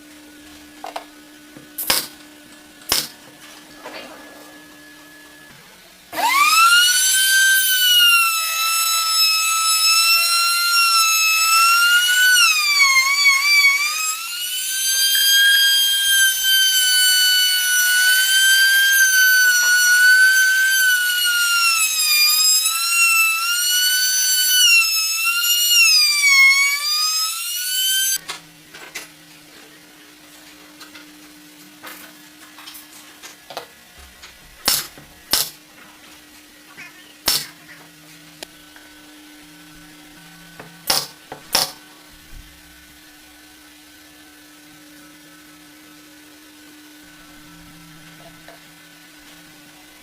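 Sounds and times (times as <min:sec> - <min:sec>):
electric power tool motor whining: 0:03.8 - 0:28.2.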